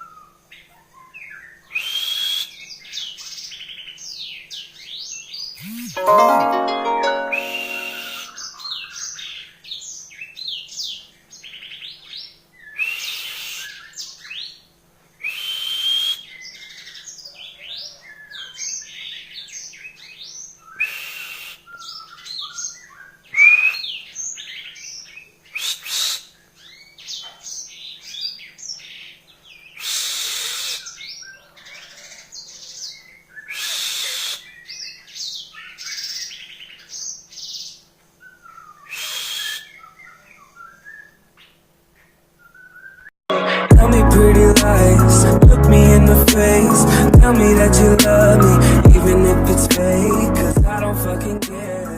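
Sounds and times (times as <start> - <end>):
canary singing chirps and trills: 30.8 - 38.9.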